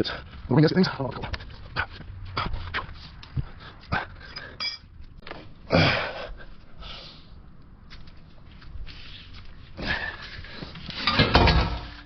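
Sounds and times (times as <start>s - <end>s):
metal pipes clanking and scraping: 4.4s - 4.9s, 10.7s - 12.0s.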